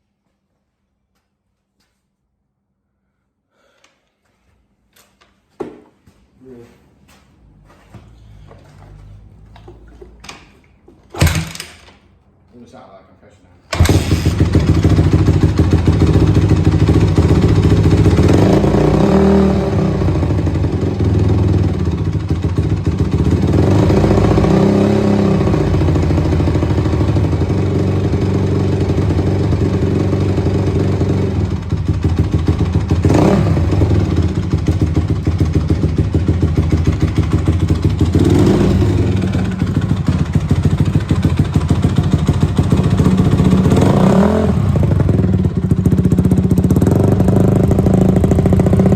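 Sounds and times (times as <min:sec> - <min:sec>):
motorcycle engine idling and revving: 0:13.7 - 0:48.9.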